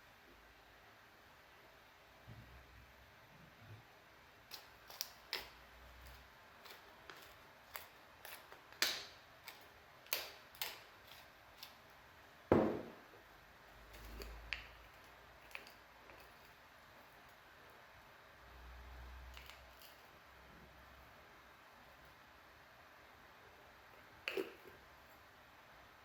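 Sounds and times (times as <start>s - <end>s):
heavy knock: 12.5s - 13.0s.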